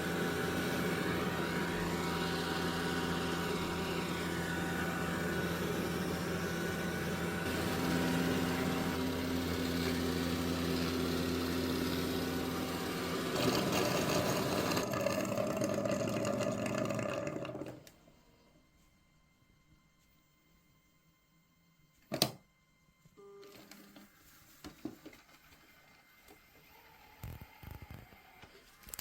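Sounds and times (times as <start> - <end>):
robot vacuum motor hum and whine: 0.0 - 19.3, 25.4 - 29.0.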